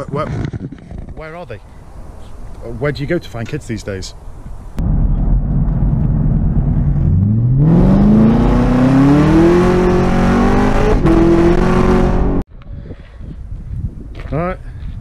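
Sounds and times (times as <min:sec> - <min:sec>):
car engine accelerating: 0:05.7 - 0:12.4.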